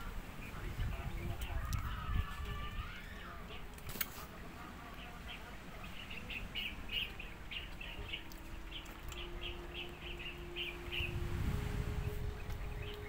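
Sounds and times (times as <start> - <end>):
low rumble: 8.4 - 13.0.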